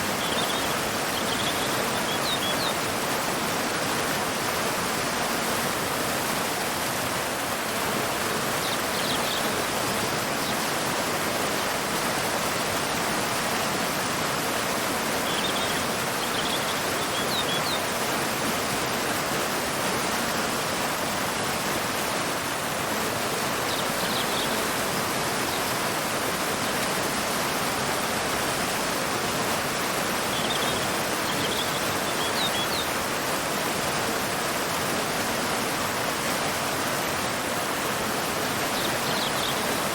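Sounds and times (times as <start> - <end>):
waterfall pouring into river: 0.0 - 39.9
faint bird chirps: 0.2 - 2.8, 15.2 - 17.9, 30.3 - 32.9, 38.7 - 39.9.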